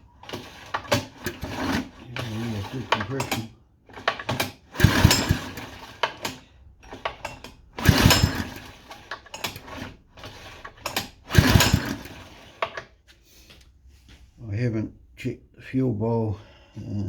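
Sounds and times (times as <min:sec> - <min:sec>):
engine pull-start turning over: 0:00.1 - 0:12.9.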